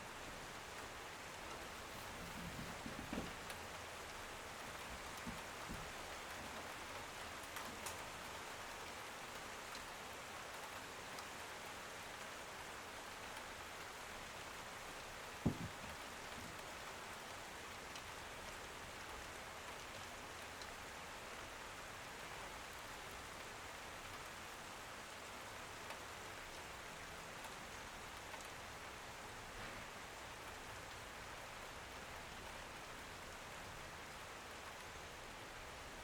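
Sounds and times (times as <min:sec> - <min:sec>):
rain on a window: 0:00.0 - 0:36.0
dull thump: 0:01.8 - 0:03.7, 0:04.5 - 0:06.4, 0:15.4 - 0:16.6.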